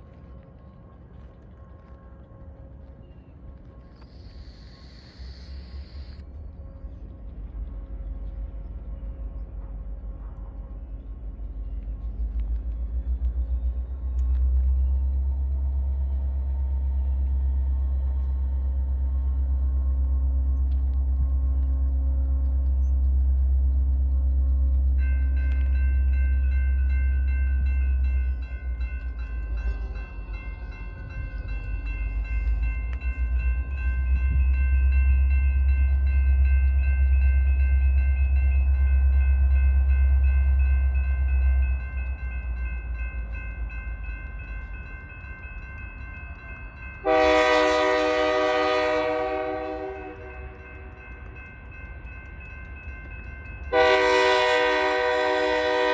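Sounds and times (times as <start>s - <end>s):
freight train rumbling past: 0.0s - 55.9s
locomotive air horn: 47.0s - 50.5s, 53.7s - 55.9s.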